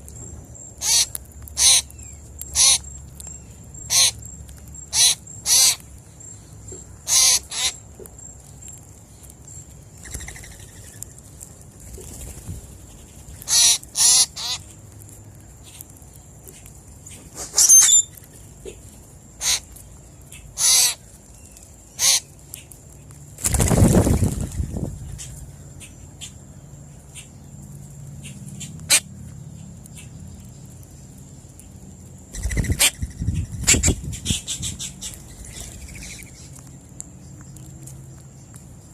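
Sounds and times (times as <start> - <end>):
harsh crow-like bird calls: 0.8 - 3.0, 3.8 - 4.2, 4.8 - 5.8, 6.7 - 7.8, 13.4 - 14.7, 19.4 - 19.7, 20.6 - 21.0, 22.0 - 22.3.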